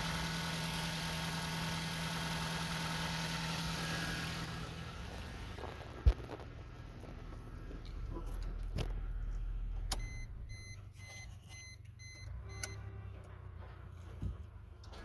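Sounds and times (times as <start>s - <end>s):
car engine idling: 0.0s - 11.0s
car warning chime beeping: 9.9s - 12.9s.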